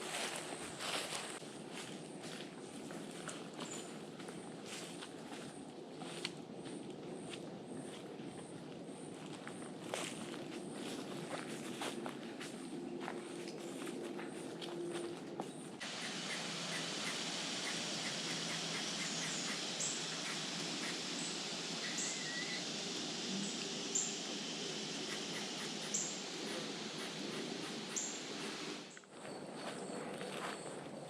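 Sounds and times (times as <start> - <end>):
wild birds calling: 14.9 - 29.0
steady hiss: 15.8 - 29.0.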